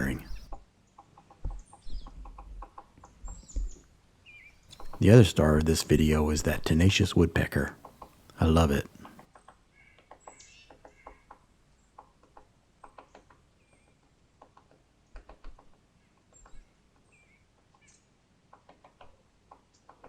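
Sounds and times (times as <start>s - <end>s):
small birds chirping faintly: 0.0s - 20.0s
distant woodpecker tapping: 4.7s - 9.2s.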